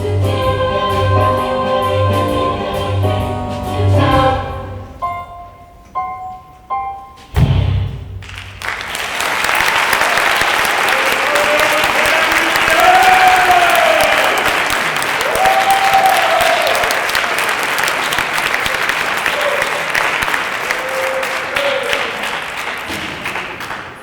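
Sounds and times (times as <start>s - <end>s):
audience applauding: 8.2s - 24.0s
cheering shouts: 9.8s - 17.6s, 19.2s - 20.0s, 20.6s - 22.3s.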